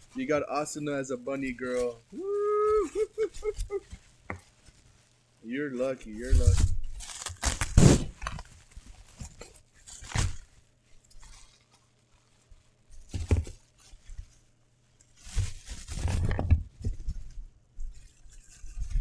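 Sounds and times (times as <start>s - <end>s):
packaging crinkling: 6.0s - 10.5s
packaging tearing: 6.3s - 9.3s.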